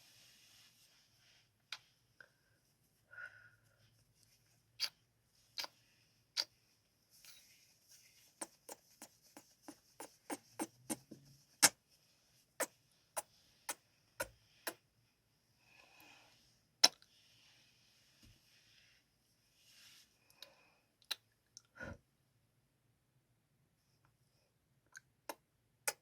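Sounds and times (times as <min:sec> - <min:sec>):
breathy mouth noise: 0:08.4 - 0:11.8, 0:12.6 - 0:14.8
kissing lip smacks: 0:08.4 - 0:11.8.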